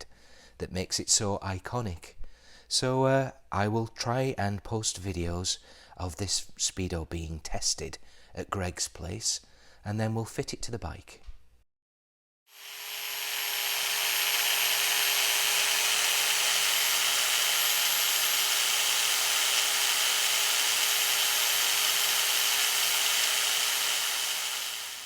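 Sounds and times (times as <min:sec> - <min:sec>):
electric motor whining: 0:12.6 - 0:25.0.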